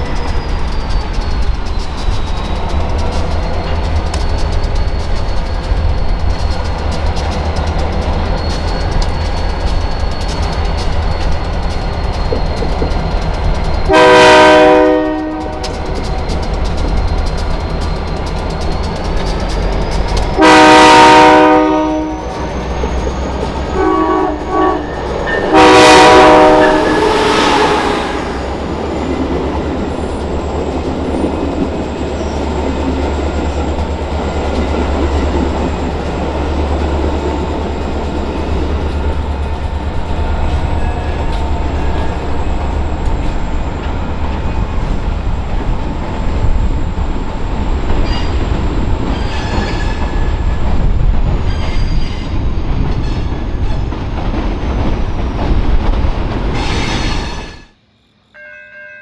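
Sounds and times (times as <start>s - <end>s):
train rumbling past: 0.0s - 58.9s
locomotive air horn: 13.9s - 15.6s, 20.4s - 22.3s, 23.7s - 28.5s.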